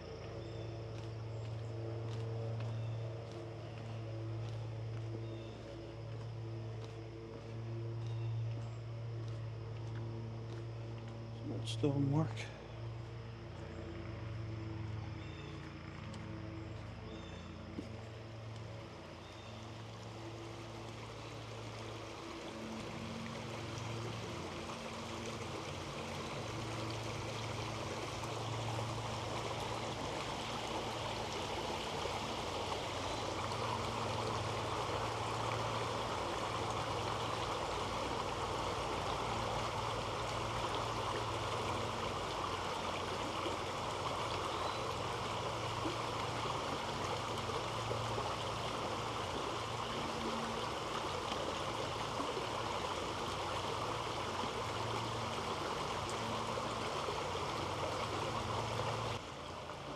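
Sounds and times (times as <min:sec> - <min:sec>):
creek water gurgling over rocks: 0:17.8 - 0:59.9.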